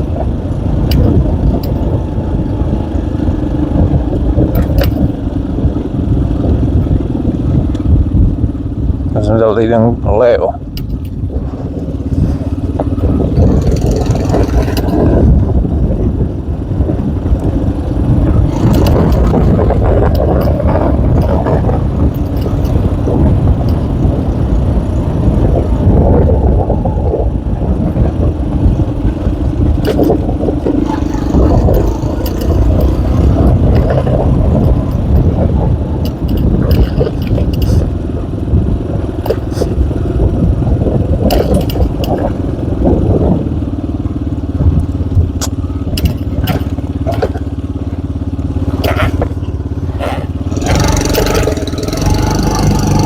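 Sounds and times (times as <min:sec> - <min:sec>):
knocks and rattles: 0:00.0 - 0:05.3, 0:10.7 - 0:15.5, 0:18.2 - 0:24.2, 0:27.8 - 0:38.4, 0:39.0 - 0:40.1, 0:40.9 - 0:42.6, 0:44.6 - 0:53.0
motorcycle engine revving: 0:00.0 - 0:53.0.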